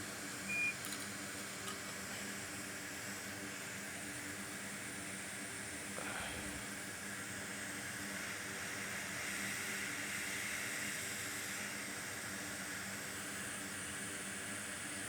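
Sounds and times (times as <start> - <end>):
hot air blower hissing: 2.0 - 15.0
faint hum: 5.8 - 6.8.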